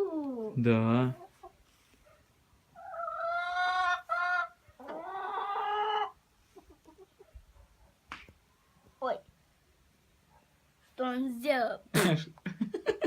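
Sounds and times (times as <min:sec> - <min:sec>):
chickens calling: 0:02.6 - 0:07.9.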